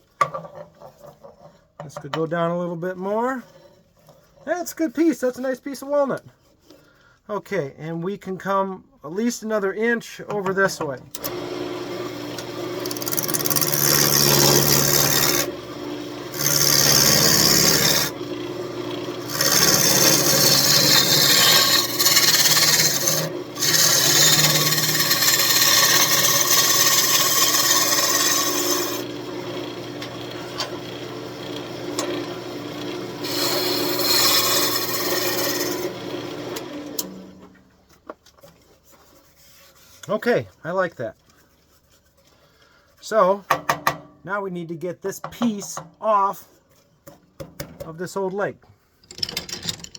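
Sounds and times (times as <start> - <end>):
wood lathe humming: 11.2 - 37.2
turning tool cutting wood: 11.2 - 37.3.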